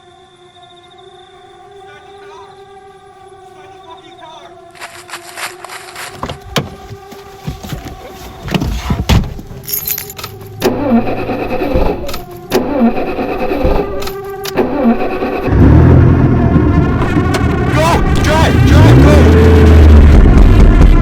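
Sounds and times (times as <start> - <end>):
car engine cranking and starting: 8.6 - 21.0
car keys rattling: 9.2 - 12.5.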